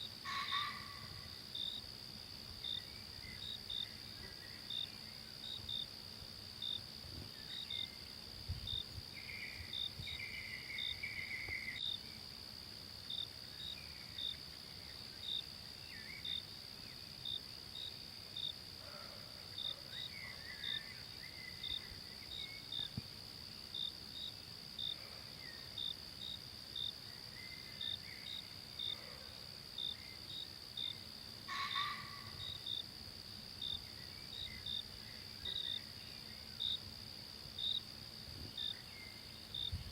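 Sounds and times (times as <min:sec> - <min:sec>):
cricket chirping: 0:00.0 - 0:39.9
high-pitched insect drone: 0:00.2 - 0:02.0.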